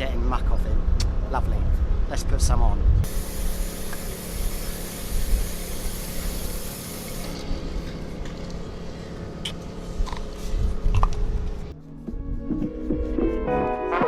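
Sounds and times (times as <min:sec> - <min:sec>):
low hum: 0:02.8 - 0:12.4
aerosol can spraying: 0:03.0 - 0:07.4.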